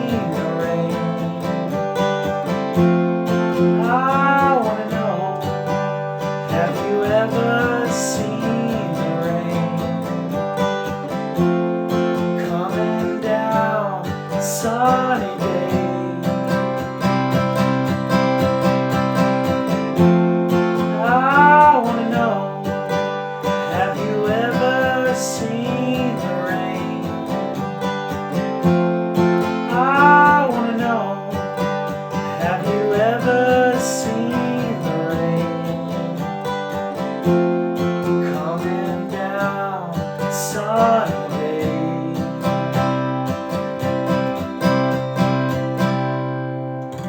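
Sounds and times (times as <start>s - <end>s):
person singing wordless melody: 0.0s - 1.7s, 3.3s - 10.3s, 12.0s - 17.3s, 20.6s - 27.8s, 28.5s - 36.3s, 38.0s - 42.8s
acoustic guitar strumming: 0.0s - 47.0s.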